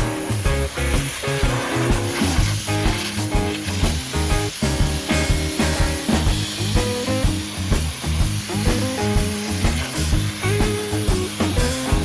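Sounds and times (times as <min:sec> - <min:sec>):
music with pulsing bass: 0:00.0 - 0:12.0
steady high hiss: 0:00.0 - 0:12.0.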